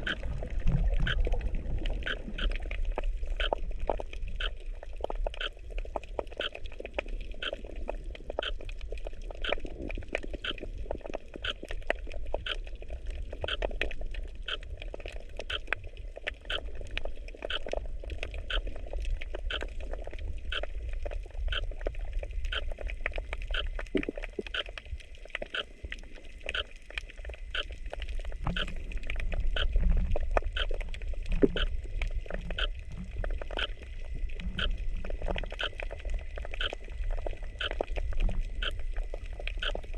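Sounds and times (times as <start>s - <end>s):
underwater rumble of moving water: 0.0s - 39.9s
sharp repeating clicks: 35.6s - 35.8s.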